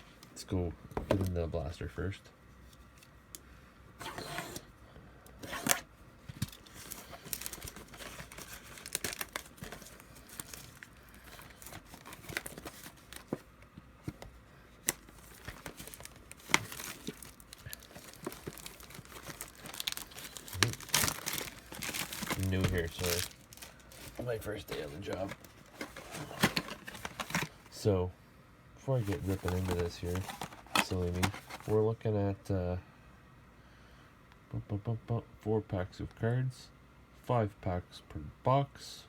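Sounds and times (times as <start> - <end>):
plastic wrapping tearing and crinkling: 6.4 - 13.4, 14.8 - 27.6.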